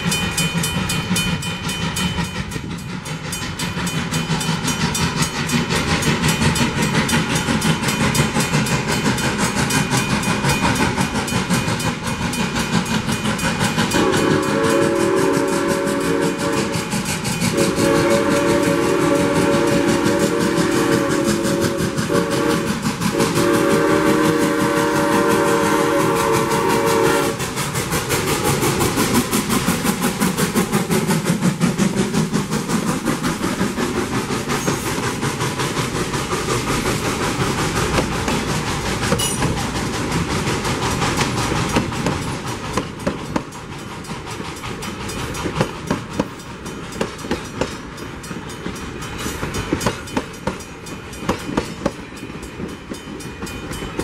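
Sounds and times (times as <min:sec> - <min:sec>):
train wheels clickety-clack: 0:00.0 - 0:54.0
locomotive air horn blasts: 0:13.9 - 0:16.9, 0:17.5 - 0:27.4.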